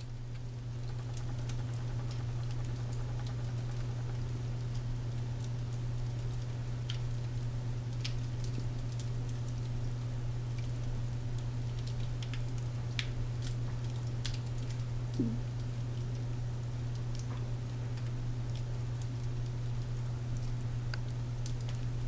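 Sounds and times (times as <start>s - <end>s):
fire crackling and popping: 0.2s - 14.9s, 15.6s - 22.0s
low hum: 0.8s - 5.2s.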